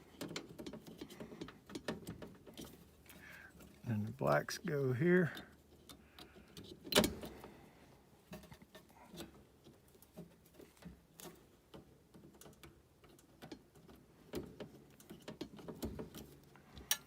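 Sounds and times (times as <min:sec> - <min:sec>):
clicks and taps of wiring: 0:00.0 - 0:03.9, 0:08.3 - 0:17.0.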